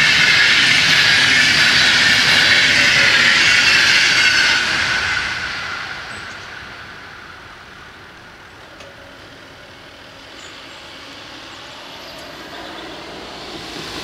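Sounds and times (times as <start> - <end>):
passenger train passing: 0.0 - 14.0
road traffic noise: 0.0 - 14.0.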